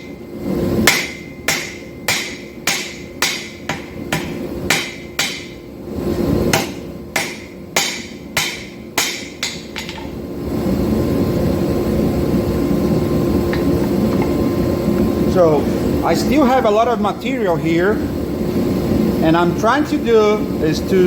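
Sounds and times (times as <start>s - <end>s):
hammer striking steel on anvil: 0.0s - 0.2s, 0.8s - 5.7s, 6.5s - 10.2s.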